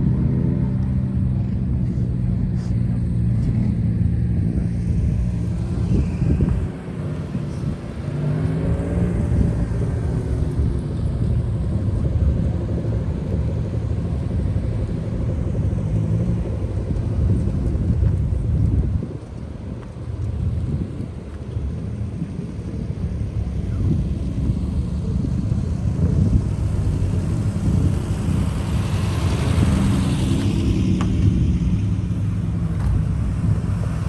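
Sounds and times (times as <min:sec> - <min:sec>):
engine revving: 0:26.0 - 0:32.1.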